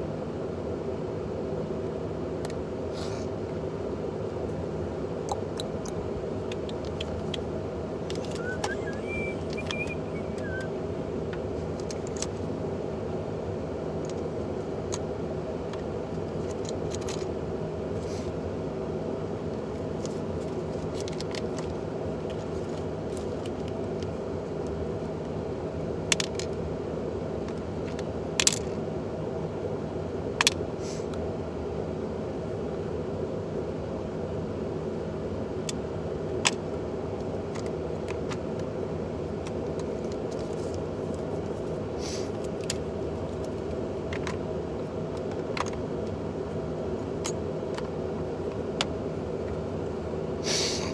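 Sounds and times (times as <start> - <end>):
steady mechanical hum: 0.0 - 50.9.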